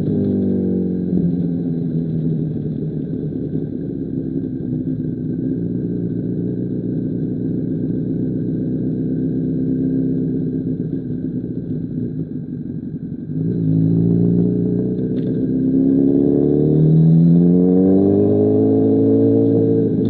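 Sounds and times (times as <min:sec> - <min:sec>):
motorcycle engine revving: 0:13.2 - 0:20.0.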